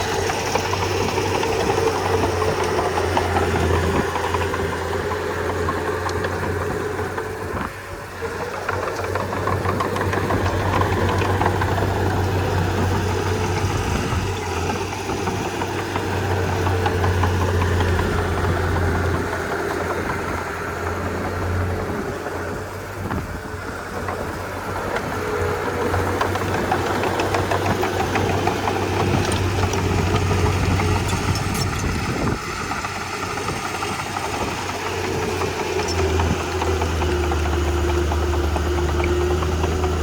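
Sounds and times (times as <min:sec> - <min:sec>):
bulldozer diesel engine droning: 0:00.0 - 0:40.0.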